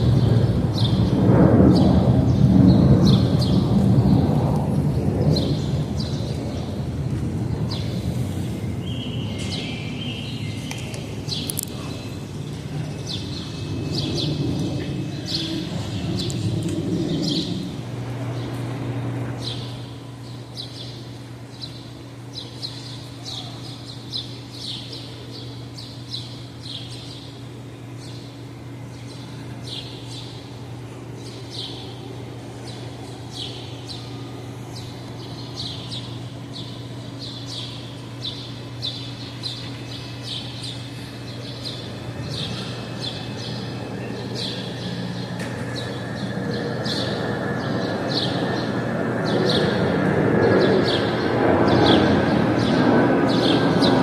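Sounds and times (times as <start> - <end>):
steady low hum: 0.0 - 54.0
small birds chirping: 5.2 - 18.8, 19.4 - 54.0
low rumble: 11.9 - 19.1.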